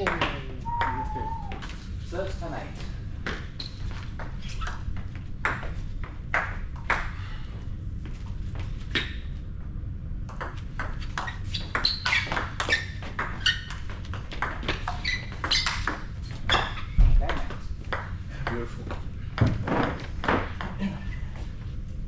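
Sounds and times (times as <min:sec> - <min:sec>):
table tennis ball hits: 0:00.0 - 0:01.6, 0:10.3 - 0:13.8.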